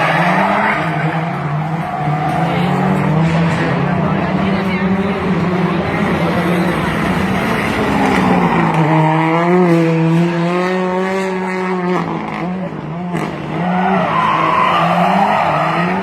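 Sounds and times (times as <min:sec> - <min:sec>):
racing car engine revving: 0:00.0 - 0:16.0.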